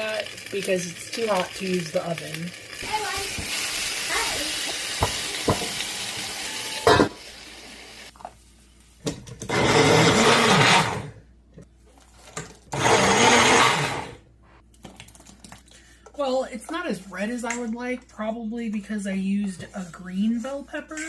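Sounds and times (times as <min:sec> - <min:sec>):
countertop blender running: 0:00.0 - 0:07.2, 0:09.4 - 0:11.2, 0:12.7 - 0:14.2
vegetables sizzling in a pan: 0:00.0 - 0:08.1.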